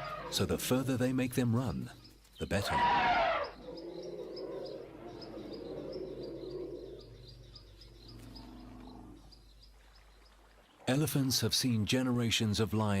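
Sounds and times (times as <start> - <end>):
small bird chirping: 3.4 - 10.4.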